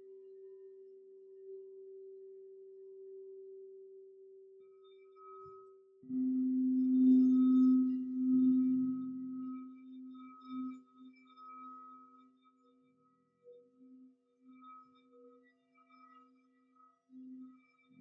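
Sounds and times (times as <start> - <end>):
low singing bowl ringing: 5.0 - 12.4
high singing bowl ringing: 5.0 - 13.0.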